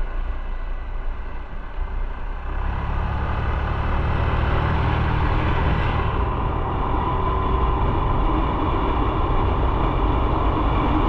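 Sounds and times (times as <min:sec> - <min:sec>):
wind noise: 0:04.9 - 0:11.0.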